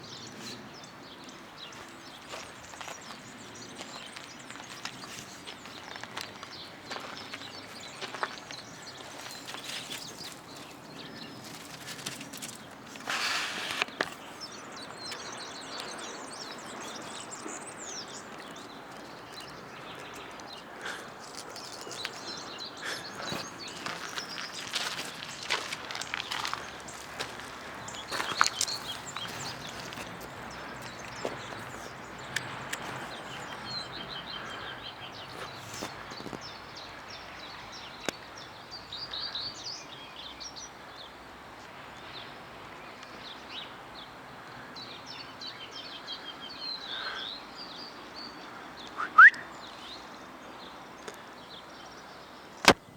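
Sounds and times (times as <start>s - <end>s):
small birds chirping: 0.0s - 52.9s
light ticks and rustles: 1.6s - 37.3s.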